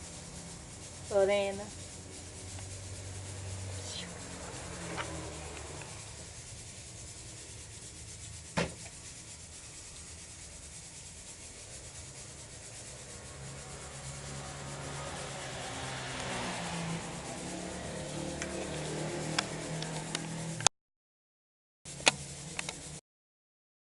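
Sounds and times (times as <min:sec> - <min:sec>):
faint rubbing noise: 0:00.0 - 0:20.6, 0:21.9 - 0:23.0
sharp click: 0:22.0 - 0:22.8.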